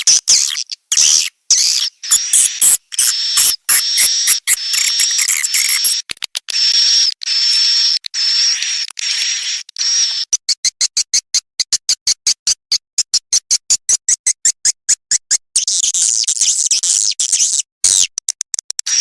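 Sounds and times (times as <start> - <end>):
bird chirping and twittering: 0.0 - 6.0.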